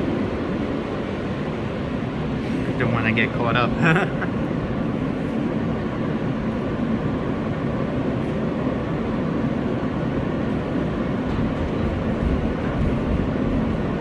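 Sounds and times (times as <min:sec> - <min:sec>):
constant hum: 0:00.0 - 0:14.0
subway train wheels rumbling on rails: 0:00.0 - 0:14.0.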